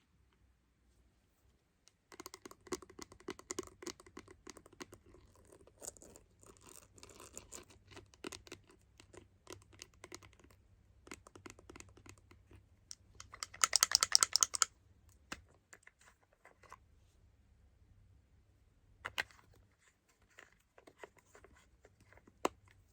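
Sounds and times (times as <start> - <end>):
tapping on phone lens: 11.0 - 15.5.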